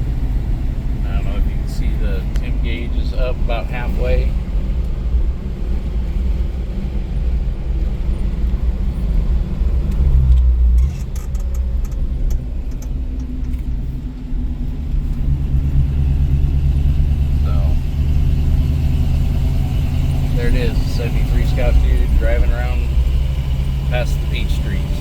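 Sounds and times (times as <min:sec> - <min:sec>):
road rumble: 0:00.0 - 0:25.0
vehicle engine running: 0:00.0 - 0:25.0.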